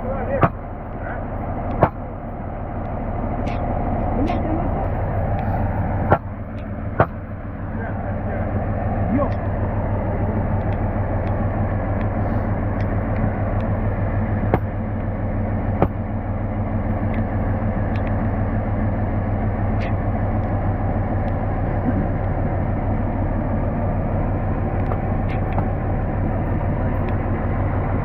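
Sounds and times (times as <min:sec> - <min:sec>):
diesel locomotive engine running: 0:00.0 - 0:28.0
sharp knocks: 0:00.4 - 0:00.6, 0:01.8 - 0:02.0, 0:06.1 - 0:06.3, 0:07.0 - 0:07.2, 0:14.5 - 0:14.7, 0:15.8 - 0:16.0.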